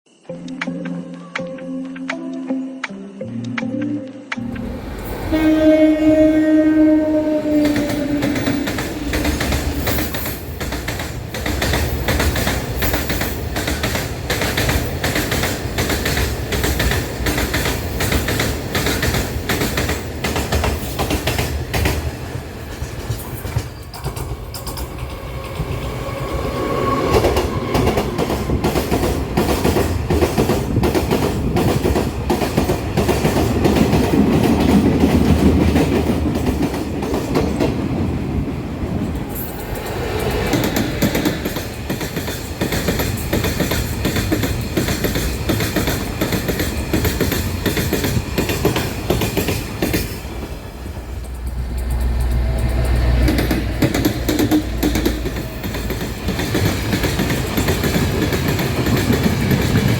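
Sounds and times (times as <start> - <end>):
train horn: 5.2 - 10.0
train wheels clattering over rail joints: 7.5 - 26.2, 27.2 - 38.0, 39.4 - 59.9.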